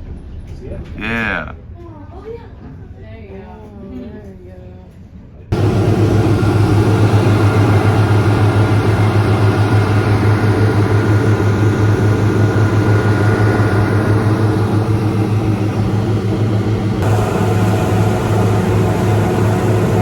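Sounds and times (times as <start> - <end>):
boat engines droning: 5.5 - 20.0.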